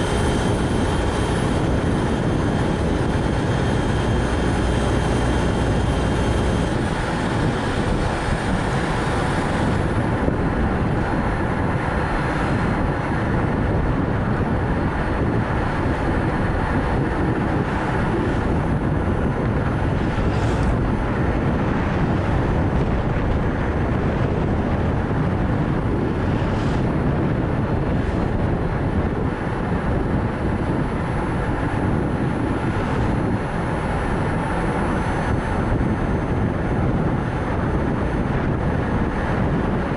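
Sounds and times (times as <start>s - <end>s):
tyre and road noise: 0.0s - 39.9s
wind: 0.0s - 39.9s.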